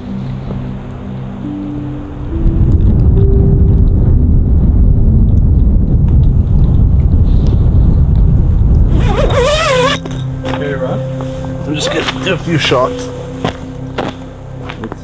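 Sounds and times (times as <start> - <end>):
wind buffeting microphone: 1.5 - 11.8.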